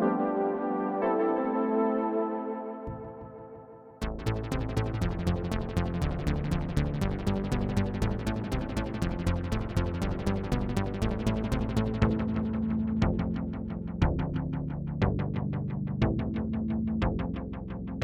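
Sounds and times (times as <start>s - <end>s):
synthesizer held chord: 0.0s - 4.1s
synthesizer pulse of bright notes: 0.0s - 5.0s.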